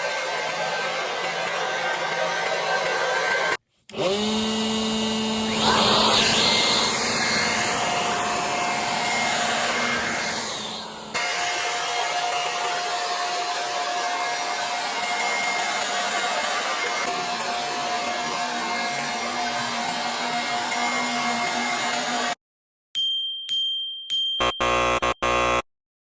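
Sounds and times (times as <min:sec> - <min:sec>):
motor whine and hum: 0:03.9 - 0:11.2
electric blower rush of air: 0:04.0 - 0:11.3.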